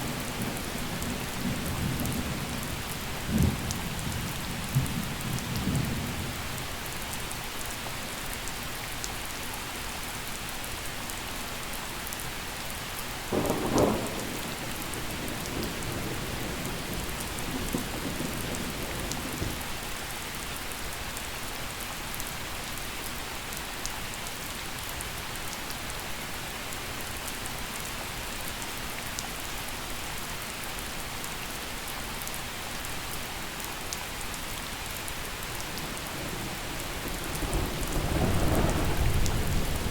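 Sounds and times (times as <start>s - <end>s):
gentle rain falling: 0.0s - 39.9s
thunder rumbling: 13.3s - 19.7s, 35.6s - 39.9s.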